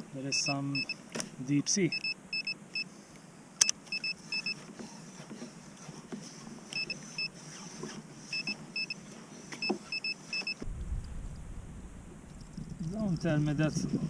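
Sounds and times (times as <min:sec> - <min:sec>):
fish finder alarm beeps: 0:00.3 - 0:01.0, 0:01.9 - 0:02.9, 0:03.6 - 0:04.6, 0:06.8 - 0:07.4, 0:08.3 - 0:09.0, 0:09.6 - 0:10.6.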